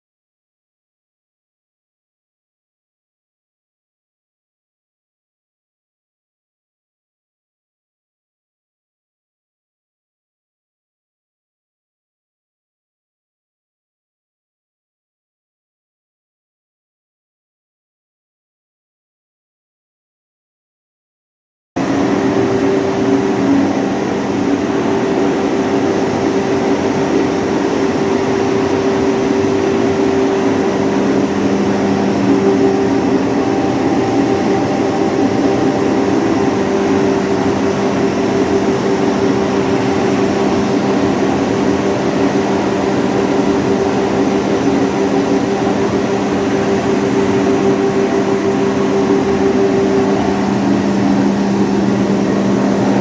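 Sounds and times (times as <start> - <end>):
hammer mill machine drone: 21.8 - 53.0.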